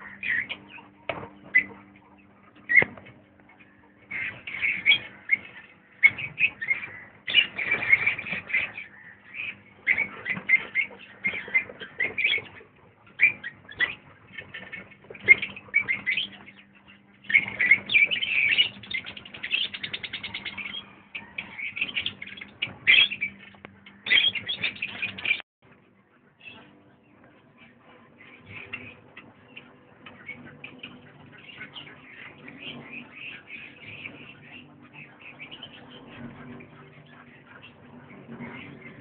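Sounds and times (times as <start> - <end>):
birds chirping: 0.0 - 39.0
fast rattling bird trill: 3.6 - 25.4.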